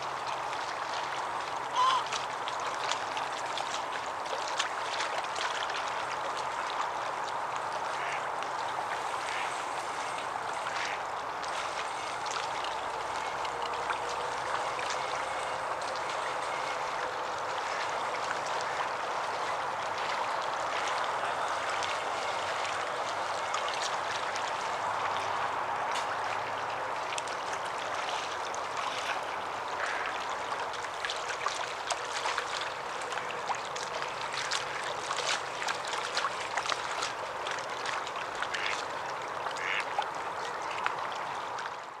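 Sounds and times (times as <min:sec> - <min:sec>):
short waterbird calls: 0:01.7 - 0:02.2, 0:38.5 - 0:38.8, 0:39.6 - 0:40.8.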